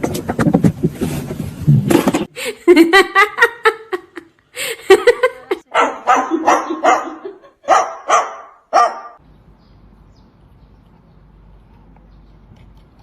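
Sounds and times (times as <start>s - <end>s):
noise: 0.0s - 2.7s
dog barking: 5.7s - 9.2s.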